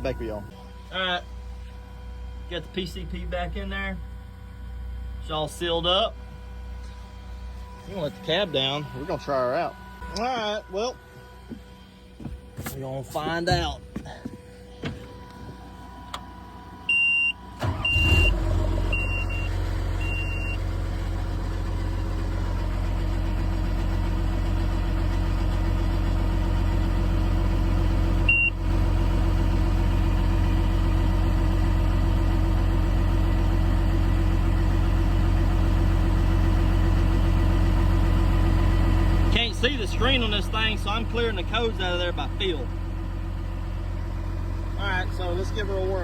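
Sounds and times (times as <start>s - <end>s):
diesel engine starting and idling: 0.0s - 46.0s
high warning beeps: 16.9s - 20.6s.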